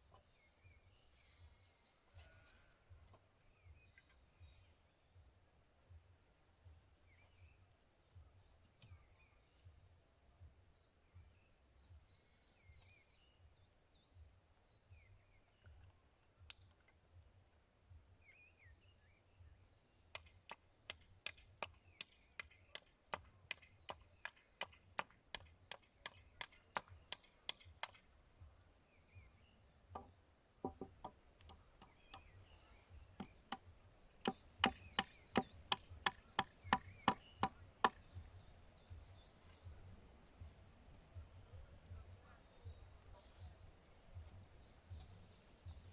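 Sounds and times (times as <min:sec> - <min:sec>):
birds chirping: 0:16.5 - 0:45.9
hammer striking wood: 0:30.0 - 0:32.3, 0:33.2 - 0:33.6, 0:34.2 - 0:38.0.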